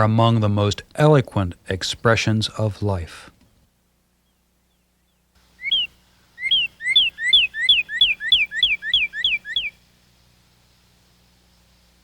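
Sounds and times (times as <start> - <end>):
songbird whistling song: 4.2 - 9.8.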